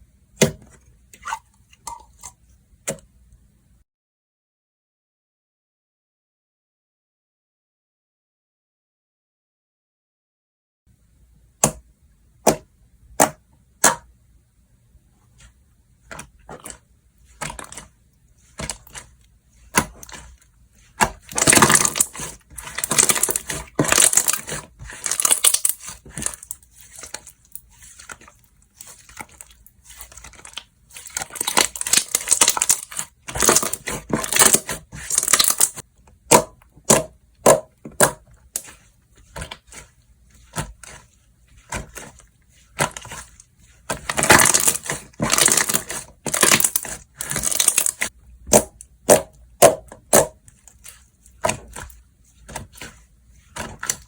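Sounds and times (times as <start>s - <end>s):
slime crackly crunching: 16.6s - 35.8s, 38.5s - 49.3s
slime popping: 21.0s - 27.2s.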